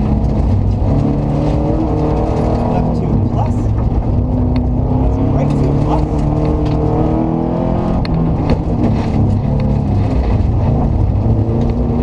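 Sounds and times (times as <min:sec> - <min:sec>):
rally car engine running hard: 0:00.0 - 0:12.0
sharp clicks and knocks: 0:08.0 - 0:11.9.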